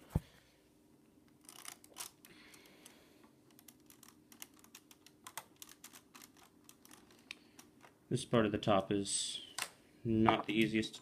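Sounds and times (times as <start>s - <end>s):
plastic toy bricks clicking: 3.5s - 7.9s.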